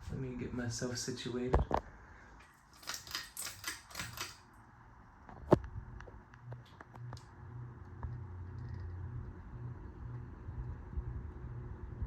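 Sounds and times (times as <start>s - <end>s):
ceiling fan motor hum: 0.0s - 12.0s
pull-chain switch clicks: 2.8s - 4.4s.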